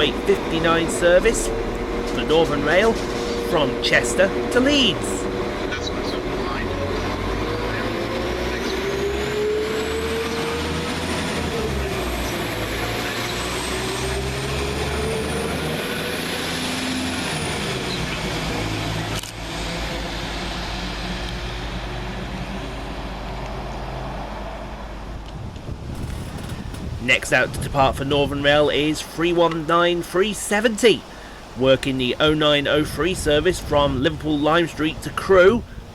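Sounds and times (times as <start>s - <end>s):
drive whine: 0.0s - 14.1s, 25.9s - 28.6s
diesel train engines under load: 0.0s - 21.1s, 26.0s - 35.9s
low engine drone: 0.0s - 23.2s, 25.9s - 27.5s.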